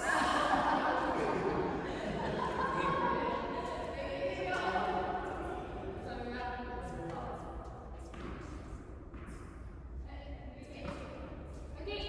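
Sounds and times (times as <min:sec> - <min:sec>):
people's voices in a hall: 0:00.0 - 0:08.2.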